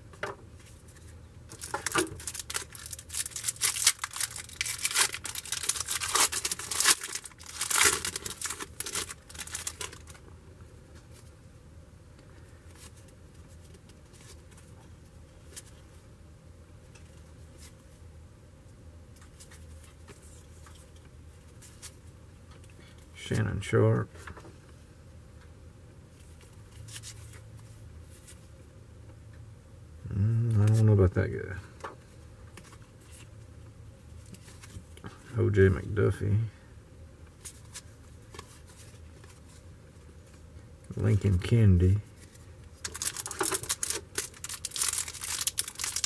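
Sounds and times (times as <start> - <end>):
wrapper tearing and crinkling: 1.5 - 10.2, 42.8 - 46.0.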